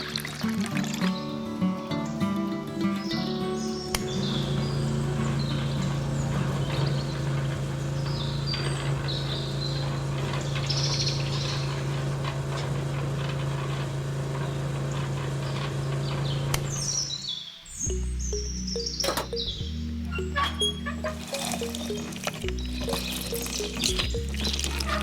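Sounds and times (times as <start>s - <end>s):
small birds chirping: 0.1s - 25.0s
steady low hum: 4.0s - 16.8s.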